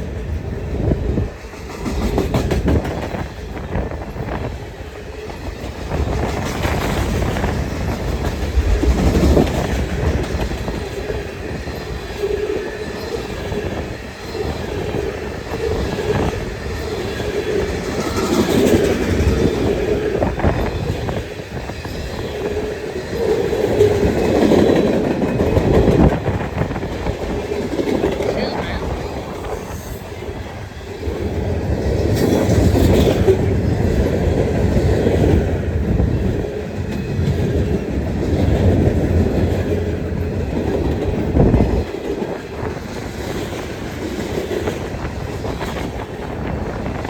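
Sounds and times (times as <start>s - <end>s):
freight train rumbling past: 0.0s - 47.0s
wind buffeting microphone: 0.0s - 47.0s
wheels clicking over rail joints: 1.3s - 28.5s.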